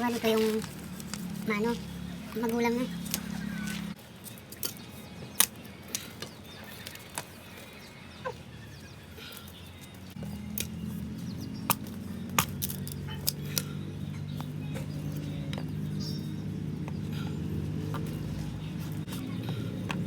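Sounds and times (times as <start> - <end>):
bamboo pieces tapping and clicking: 10.2 - 10.9, 11.6 - 15.7, 17.8 - 20.0.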